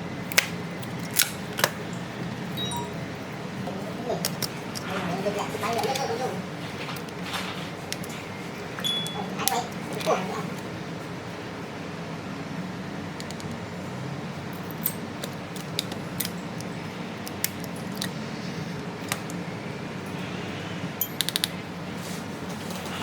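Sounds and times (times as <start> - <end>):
steady low hum: 0.0 - 23.0
small tools clicking and tapping: 21.0 - 21.6.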